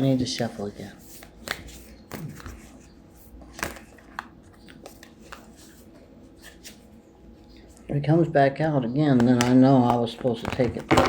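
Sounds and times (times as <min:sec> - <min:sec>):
cards being shuffled: 0:00.0 - 0:06.9, 0:09.2 - 0:11.0.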